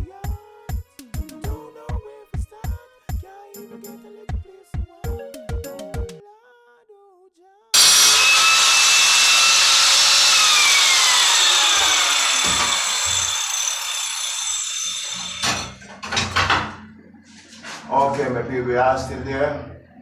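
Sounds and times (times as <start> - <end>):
power tool cutting: 7.8 - 15.8.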